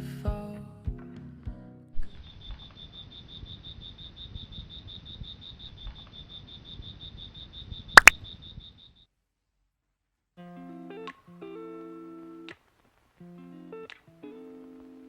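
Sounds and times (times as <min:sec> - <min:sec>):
cricket chirping: 0:02.0 - 0:09.1.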